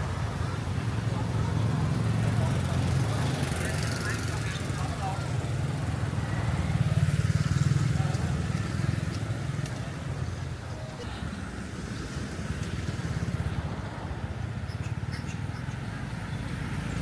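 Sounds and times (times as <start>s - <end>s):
market voices: 0.0s - 12.8s.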